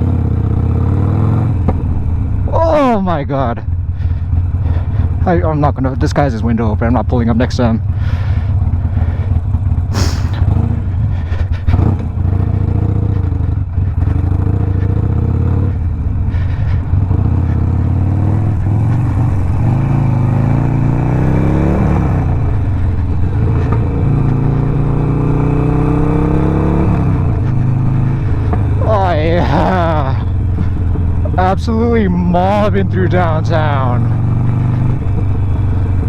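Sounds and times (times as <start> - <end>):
motorcycle engine pulling away: 7.4 - 36.0.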